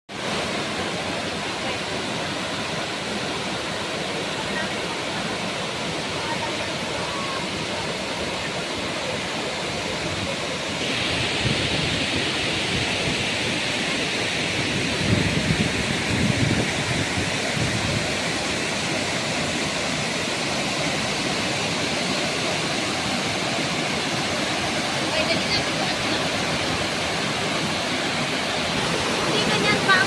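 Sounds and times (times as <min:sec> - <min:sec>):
waterfall rushing: 0:00.1 - 0:30.0.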